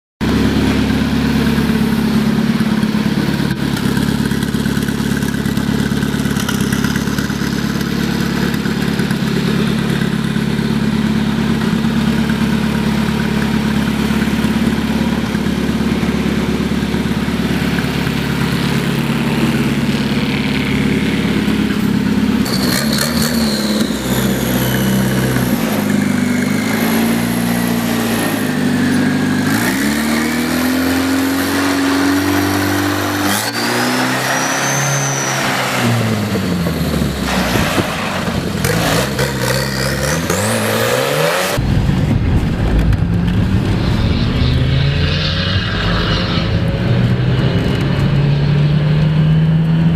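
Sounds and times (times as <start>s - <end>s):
tractor engine revving: 0.2s - 49.9s
faint falling whine: 41.6s - 49.2s.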